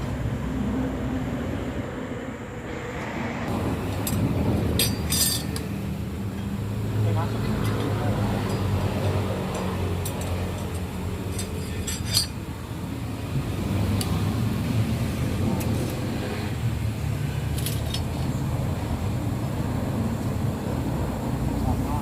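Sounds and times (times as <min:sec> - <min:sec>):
low mechanical rumble: 0:00.0 - 0:22.0
metal tools clinking: 0:03.8 - 0:06.5, 0:07.6 - 0:08.9, 0:09.5 - 0:12.5, 0:17.6 - 0:18.4.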